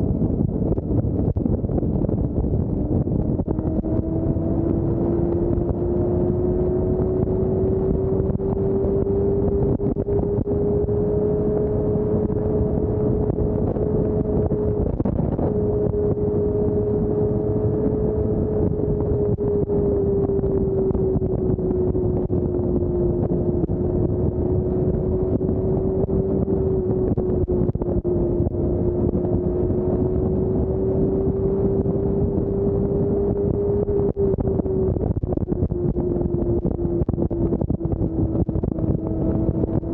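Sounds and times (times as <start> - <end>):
motorcycle engine hum: 0.0 - 39.9
wind and road rush: 0.0 - 39.9.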